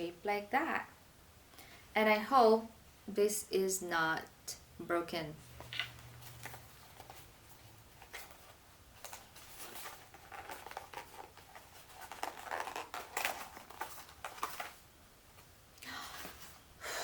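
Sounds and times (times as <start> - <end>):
packaging rustling and clicking: 7.9 - 14.8.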